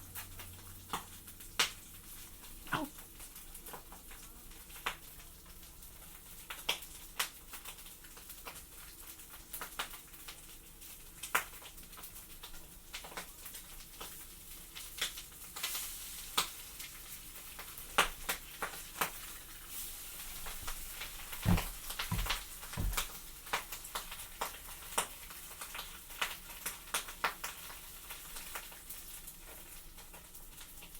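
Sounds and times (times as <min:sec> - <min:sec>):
food sizzling in a pan: 0:00.0 - 0:20.3, 0:23.7 - 0:30.9
sharp pops and crackles: 0:20.4 - 0:23.2
dull knocks: 0:20.6 - 0:23.2.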